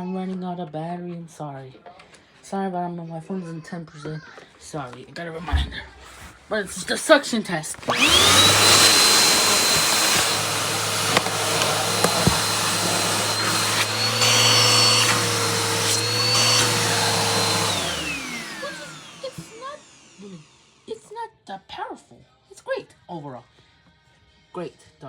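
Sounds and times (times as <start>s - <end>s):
vacuum cleaner motor whining: 5.4s - 20.8s.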